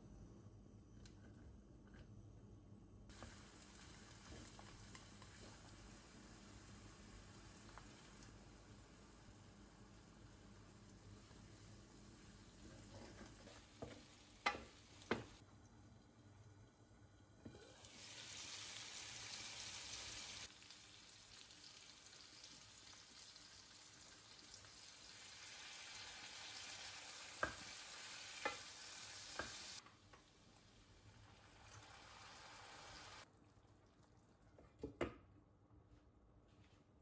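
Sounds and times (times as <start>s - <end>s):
food sizzling in a frying pan: 3.1s - 15.4s, 17.3s - 33.3s
cooking utensil tapping a pan: 13.0s - 15.4s, 27.3s - 27.7s, 28.4s - 28.7s.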